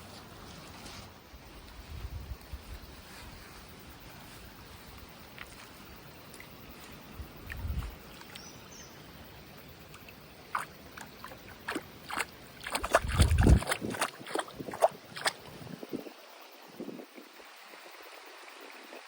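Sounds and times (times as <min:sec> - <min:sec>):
wind rumble on microphone: 0:01.4 - 0:03.4, 0:07.1 - 0:08.1, 0:12.7 - 0:17.4
flowing river: 0:02.9 - 0:19.0
shallow water splashing: 0:09.8 - 0:15.9.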